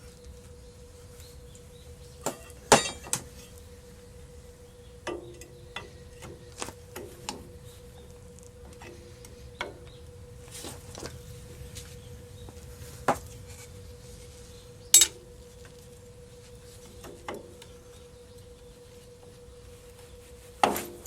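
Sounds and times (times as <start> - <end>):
metal tools and parts clinking: 2.3 - 3.5
loud metal clank: 2.4 - 3.2.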